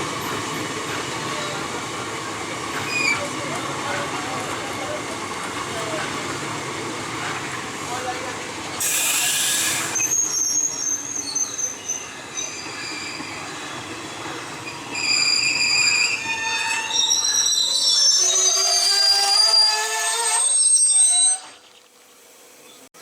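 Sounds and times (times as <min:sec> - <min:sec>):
train wheels squealing on rails: 0:00.2 - 0:01.8, 0:02.6 - 0:05.1, 0:08.7 - 0:21.6
loud hiss: 0:08.8 - 0:10.9.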